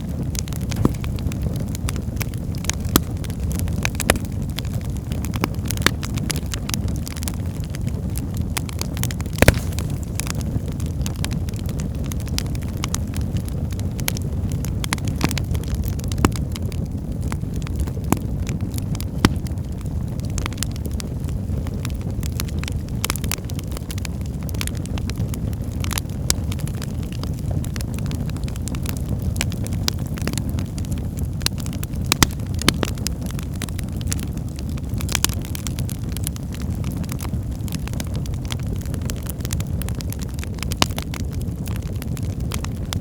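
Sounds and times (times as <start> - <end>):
fire crackling: 0.0 - 43.0
low rumble of flames: 0.0 - 43.0
sharp pops and snaps: 0.4 - 6.5, 9.2 - 10.6, 16.1 - 16.6, 19.0 - 20.0, 32.0 - 33.1.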